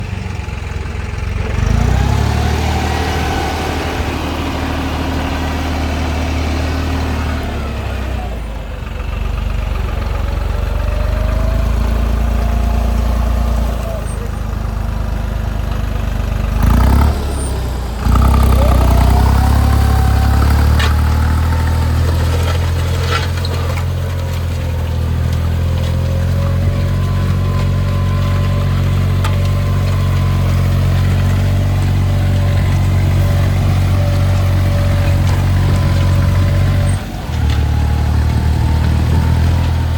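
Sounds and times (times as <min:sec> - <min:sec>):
tractor engine running: 0:00.0 - 0:39.9
loud engine burst: 0:16.6 - 0:23.8.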